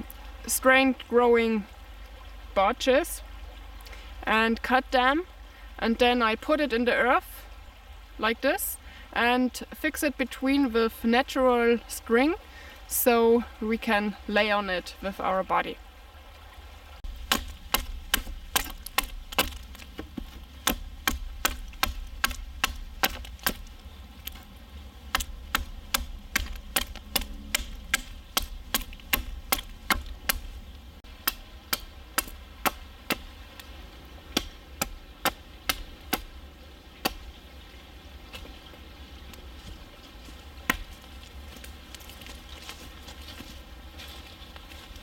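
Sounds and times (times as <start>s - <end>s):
blade chopping wood: 17.1s - 24.5s, 25.1s - 36.4s, 37.0s - 37.2s, 40.7s - 41.0s.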